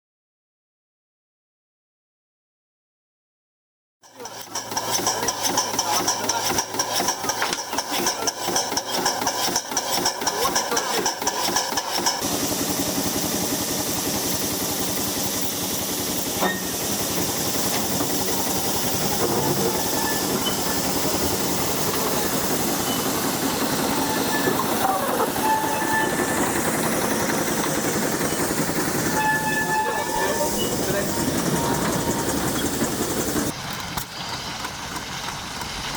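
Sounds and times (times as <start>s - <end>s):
steam locomotive hissing: 4.1s - 35.9s.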